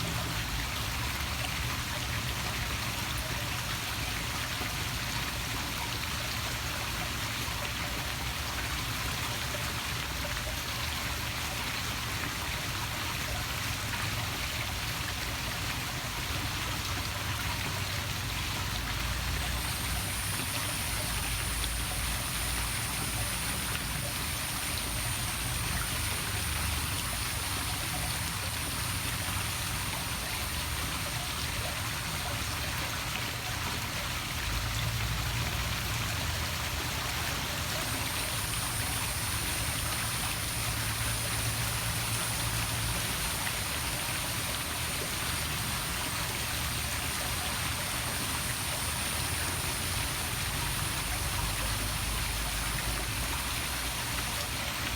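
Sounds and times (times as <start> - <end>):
waterfall splashing into pool: 0.0 - 54.9
high-pitched hiss: 19.2 - 33.0, 37.6 - 54.9.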